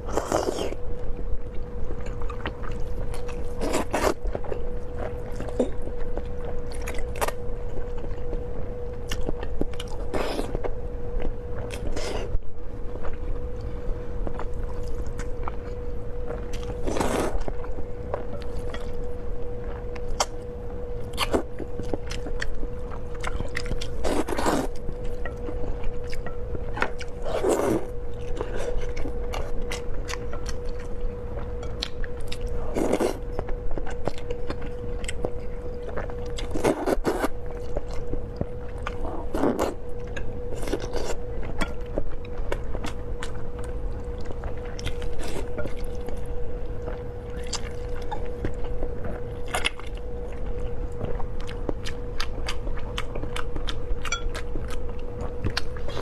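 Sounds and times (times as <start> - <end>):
steady hum: 0.0 - 56.0
chewing and mouth noises: 21.0 - 56.0.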